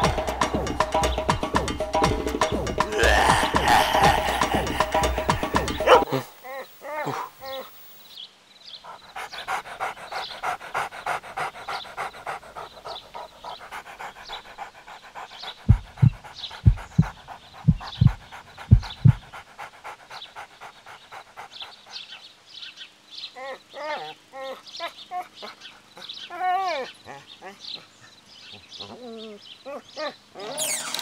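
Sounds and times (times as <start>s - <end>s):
fast panting: 0.0s - 6.4s, 8.8s - 22.8s
deep thumps: 15.7s - 19.3s.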